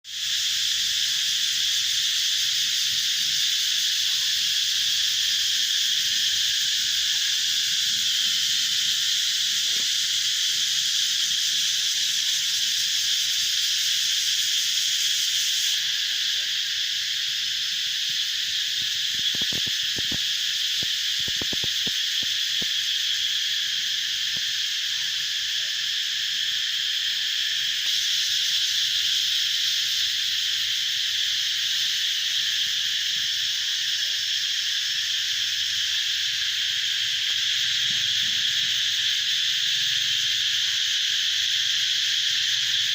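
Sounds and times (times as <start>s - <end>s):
cicadas buzzing: 0.0s - 42.9s.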